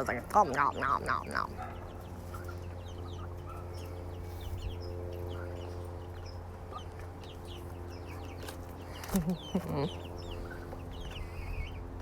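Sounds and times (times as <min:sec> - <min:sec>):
chicks peeping: 0:00.0 - 0:12.0
steady low hum: 0:00.0 - 0:12.0.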